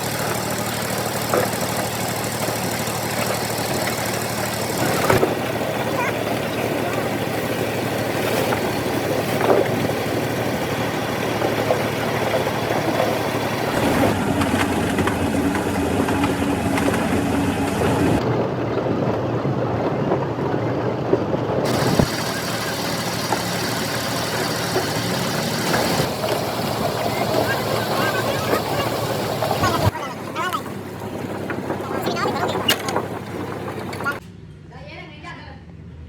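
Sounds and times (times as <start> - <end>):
machinery engine noise: 0.0 - 34.3.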